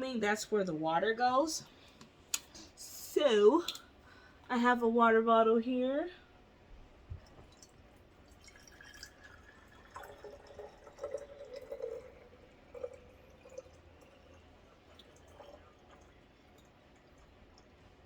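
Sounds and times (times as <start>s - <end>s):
water dripping: 3.6s - 4.0s, 7.1s - 18.0s
water pouring and gurgling: 7.2s - 18.0s.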